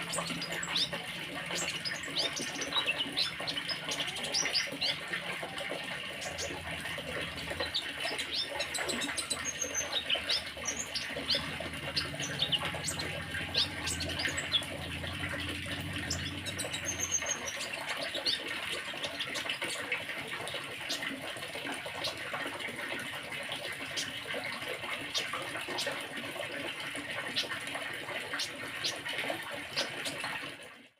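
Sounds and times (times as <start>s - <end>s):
small songbirds chirping: 6.0s - 19.9s
low hum: 10.0s - 17.6s.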